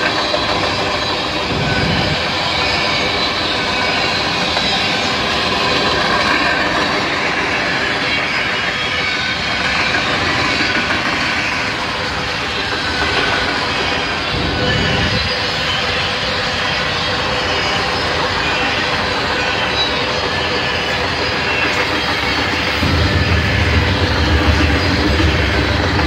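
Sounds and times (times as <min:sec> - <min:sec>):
steel wheels clattering on rail: 0:00.0 - 0:26.0.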